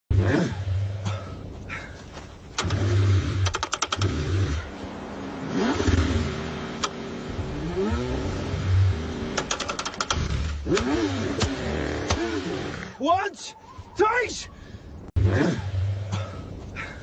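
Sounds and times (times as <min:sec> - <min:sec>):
car engine cranking: 0:02.4 - 0:04.8, 0:05.4 - 0:13.0
quick clicks: 0:02.6 - 0:04.2, 0:09.3 - 0:12.2.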